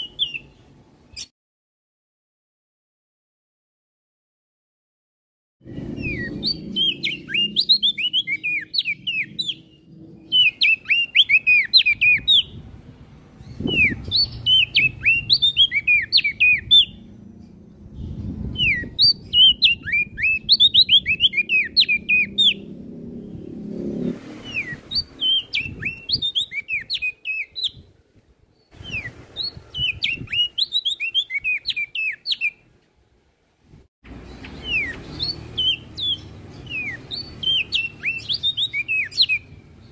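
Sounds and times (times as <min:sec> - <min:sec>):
songbird chirping: 0:00.0 - 0:01.3, 0:05.6 - 0:33.1, 0:34.1 - 0:39.9.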